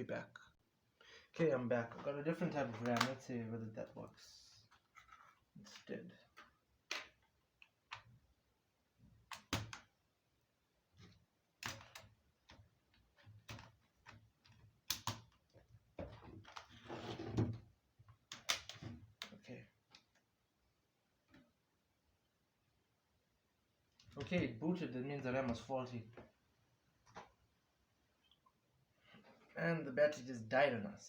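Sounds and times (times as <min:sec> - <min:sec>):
rustling and scraping: 0:16.0 - 0:17.6.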